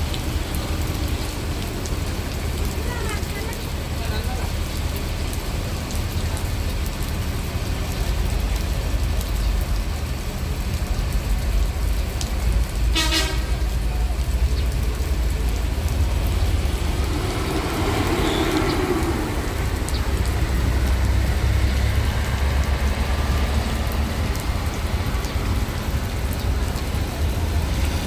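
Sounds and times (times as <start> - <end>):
heavy rain pouring: 0.0 - 28.0
bus horn toot: 12.9 - 13.6.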